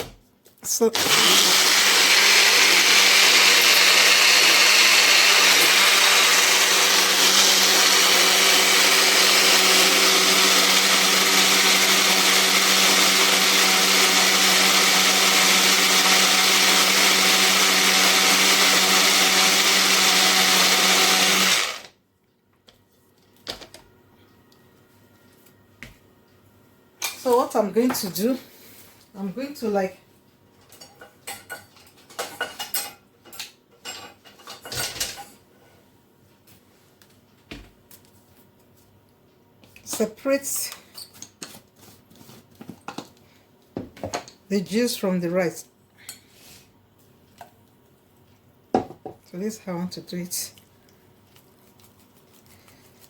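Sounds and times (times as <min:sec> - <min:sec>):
electric blender running: 0:01.0 - 0:22.0.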